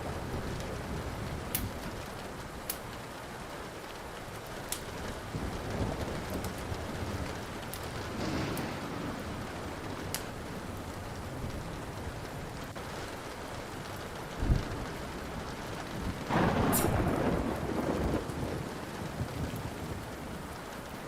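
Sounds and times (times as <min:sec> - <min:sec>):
steady rain: 0:00.0 - 0:21.0
wood fire crackling: 0:00.0 - 0:21.0
rolling thunder rumbling: 0:04.3 - 0:20.8
deep boom of thunder: 0:08.0 - 0:10.8, 0:16.3 - 0:18.7.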